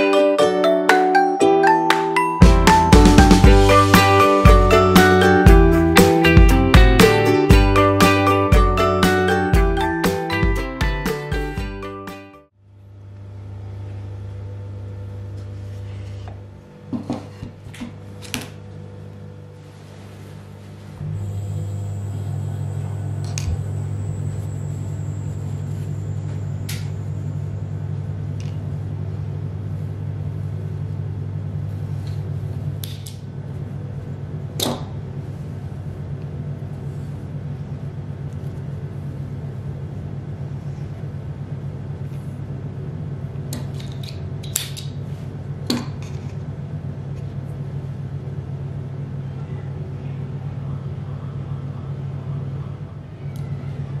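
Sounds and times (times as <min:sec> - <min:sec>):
appliance motor humming: 0:21.0 - 0:28.0.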